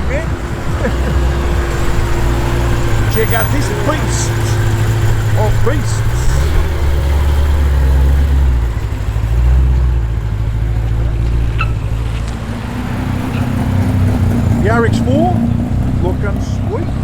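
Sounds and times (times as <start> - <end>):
car engine rumbling past: 0.0 - 17.0.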